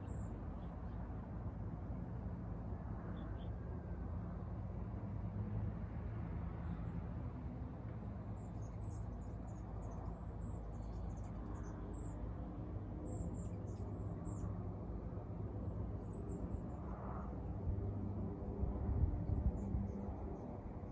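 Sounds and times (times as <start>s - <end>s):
songbirds chirping: 8.2s - 14.6s.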